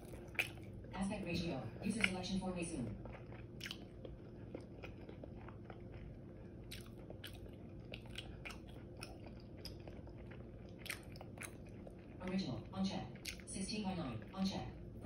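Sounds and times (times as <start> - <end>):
crunchy crackles of chewing: 0.0 - 15.0
soft mouth sounds: 3.0 - 12.0.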